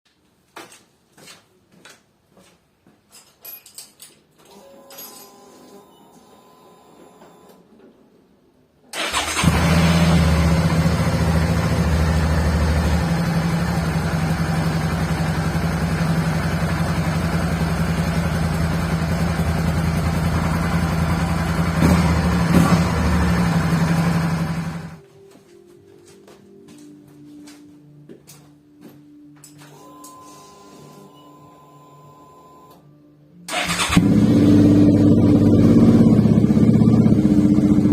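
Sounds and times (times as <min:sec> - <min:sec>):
motorcycle engine idling: 0:09.2 - 0:25.0, 0:33.5 - 0:37.9.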